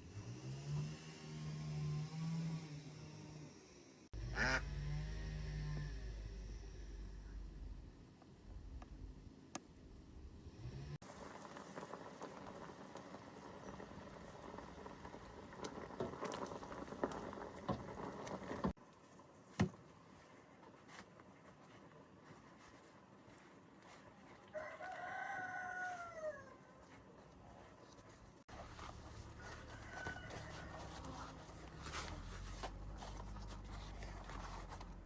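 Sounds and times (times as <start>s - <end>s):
rustling crackling noise: 11.0s - 35.0s
rooster crowing: 24.5s - 26.9s, 28.6s - 31.9s.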